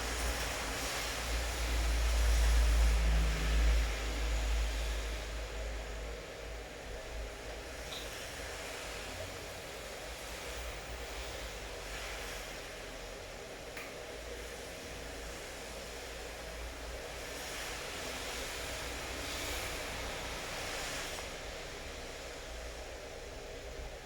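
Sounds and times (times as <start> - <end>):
steady rainfall: 0.0 - 6.0.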